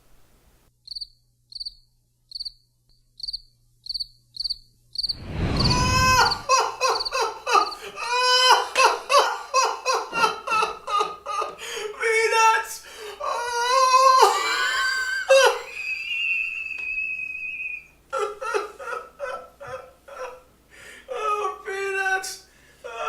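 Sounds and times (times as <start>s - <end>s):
cricket chirps: 0.8s - 7.8s
high-pitched vocal cries: 5.6s - 8.9s, 13.2s - 15.8s.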